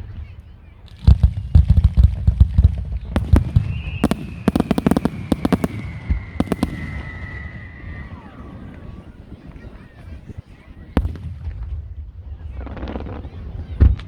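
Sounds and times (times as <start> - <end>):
fireworks bursts and cracks: 0.9 - 14.0
high falling firework whistle: 3.2 - 10.2.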